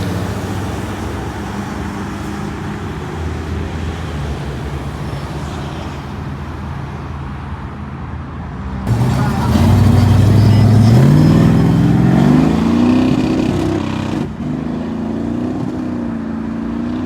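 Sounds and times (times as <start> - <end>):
background traffic: 0.0 - 17.0
car engine running: 8.9 - 13.4.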